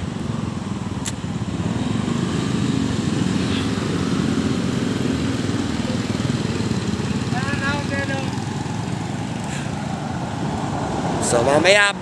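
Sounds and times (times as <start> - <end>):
small motorcycle engine running: 1.3 - 9.9.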